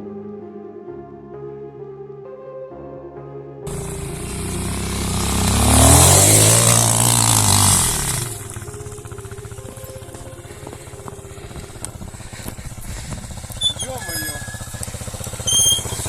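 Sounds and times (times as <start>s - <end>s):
motorcycle engine revving: 3.7s - 16.0s.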